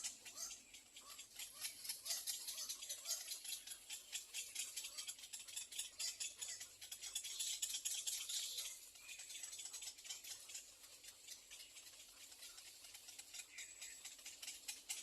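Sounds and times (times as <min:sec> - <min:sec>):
soft rapid clicking and rattling: 0:00.0 - 0:15.0.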